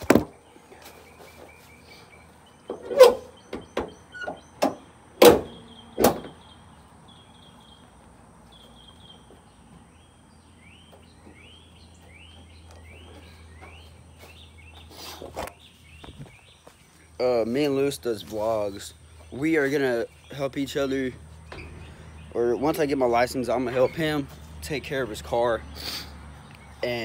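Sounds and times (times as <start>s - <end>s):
bangs on truck body panels: 0.0s - 0.4s, 2.7s - 6.4s
hood slammed shut: 0.0s - 0.4s, 2.7s - 6.4s
bird chirping: 0.0s - 27.0s.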